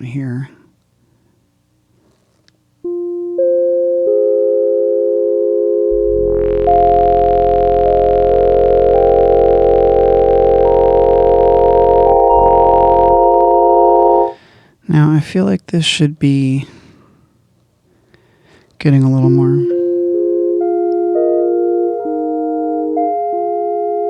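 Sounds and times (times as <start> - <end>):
sustained synthesizer chord: 2.9 - 14.4, 19.2 - 24.0.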